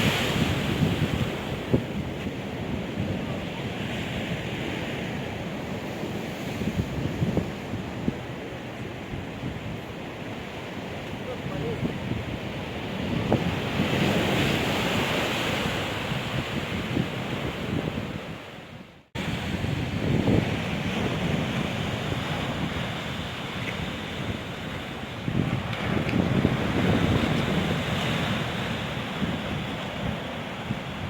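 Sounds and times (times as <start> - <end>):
sea surf breaking: 0.0 - 18.4
wind buffeting microphone: 0.0 - 31.0.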